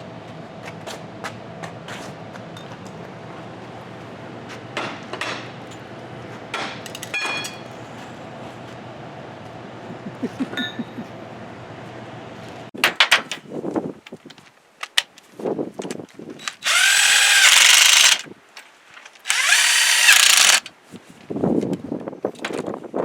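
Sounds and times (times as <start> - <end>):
electric drill whining: 16.5 - 18.2, 19.3 - 20.7.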